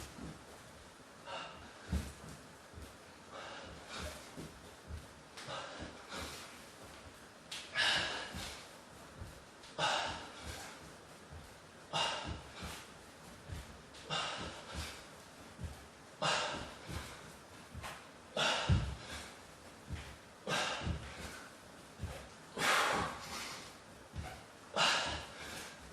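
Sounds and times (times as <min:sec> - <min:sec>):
man breathing hard: 0:01.2 - 0:25.9
body thumping on floor: 0:01.8 - 0:03.0, 0:10.0 - 0:15.0, 0:15.6 - 0:23.4.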